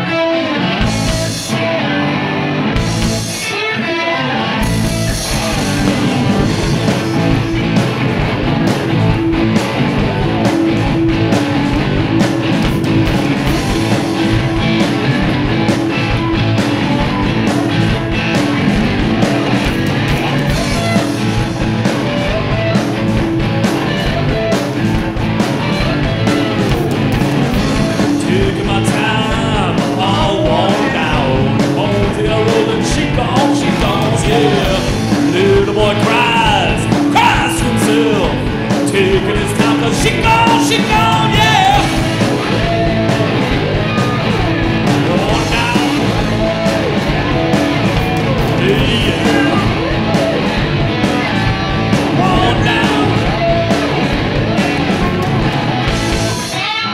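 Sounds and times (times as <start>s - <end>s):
bass guitar: 0.0s - 56.9s
drums: 0.0s - 56.9s
electric guitar: 0.0s - 56.9s
lap steel guitar: 0.0s - 56.9s
person singing: 27.8s - 42.2s, 44.8s - 46.8s, 48.0s - 50.2s, 52.0s - 53.9s.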